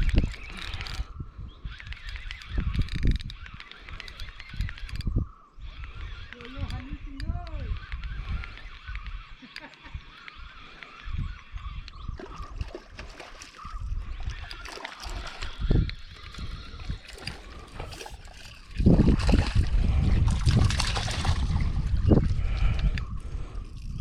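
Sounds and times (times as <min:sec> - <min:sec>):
water splashing and trickling: 0:12.2 - 0:24.0.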